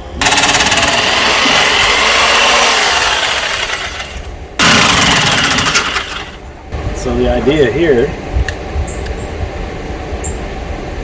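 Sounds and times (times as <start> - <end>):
power tool running: 0.2 - 6.4.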